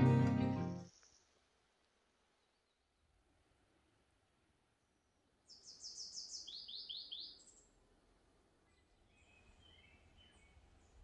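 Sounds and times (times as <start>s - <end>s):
faint bird chirps: 5.4s - 7.8s.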